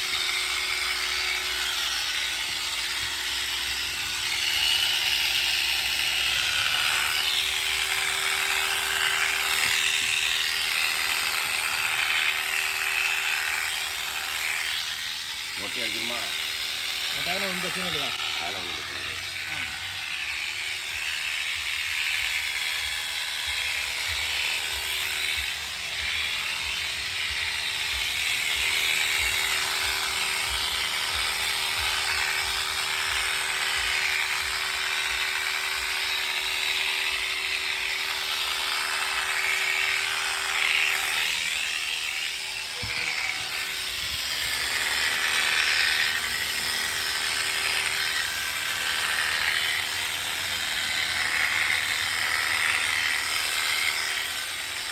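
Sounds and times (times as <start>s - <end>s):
electric clippers shearing wool: 0.0s - 54.9s.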